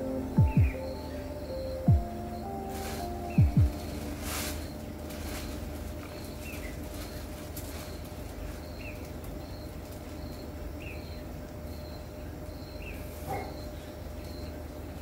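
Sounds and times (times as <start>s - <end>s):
low steady rumble: 0.0s - 7.8s
bird chirping: 0.0s - 15.0s.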